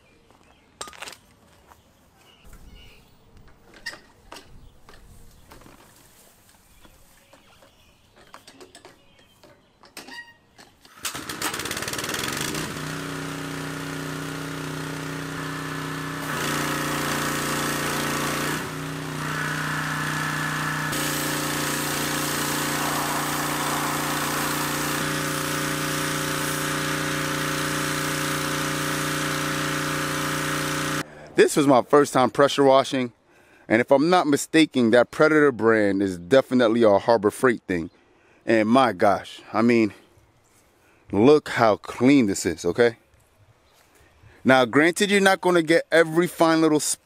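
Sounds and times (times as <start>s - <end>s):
pressure washer engine running: 11.0s - 31.0s
high-pressure spray hiss: 19.3s - 27.8s.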